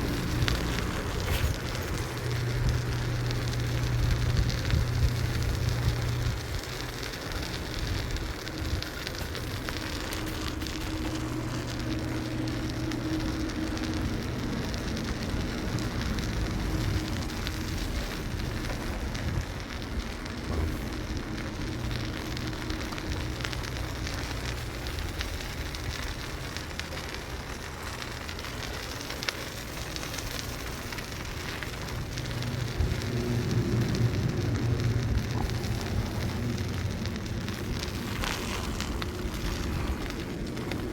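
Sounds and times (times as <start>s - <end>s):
wind on microphone: 0.0s - 6.8s, 31.4s - 40.9s
low hum: 0.0s - 40.9s
tyres rolling on pavement: 0.0s - 40.9s.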